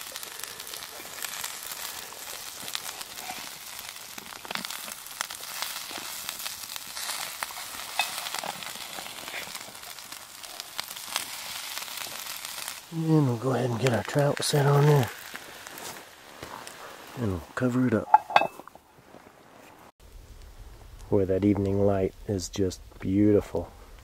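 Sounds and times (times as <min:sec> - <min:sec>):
potatoes and onions sizzling in a pan: 0:00.0 - 0:17.4
metal spatula scraping and clicking: 0:07.0 - 0:09.0.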